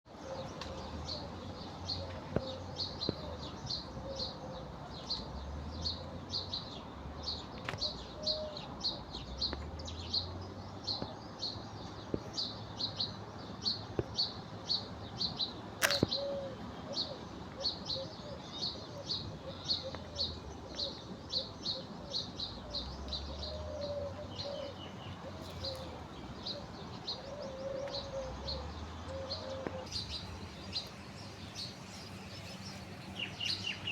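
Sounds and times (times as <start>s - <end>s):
sharp click: 15.8s - 16.2s.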